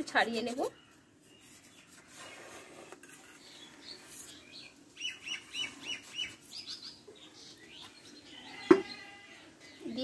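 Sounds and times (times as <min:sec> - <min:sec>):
small bird chirping: 0:00.0 - 0:10.0.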